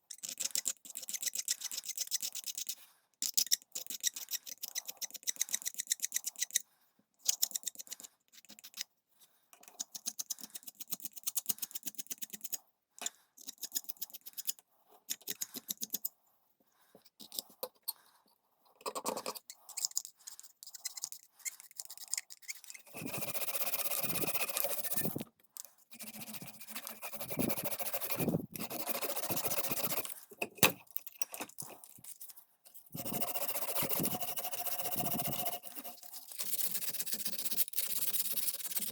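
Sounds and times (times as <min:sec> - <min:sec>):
scraping and scrubbing screwdriver: 0:18.8 - 0:25.3, 0:25.9 - 0:38.9.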